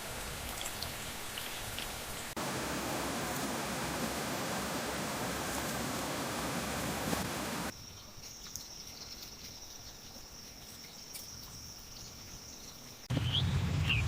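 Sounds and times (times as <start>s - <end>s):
rushing water: 0.0s - 7.7s.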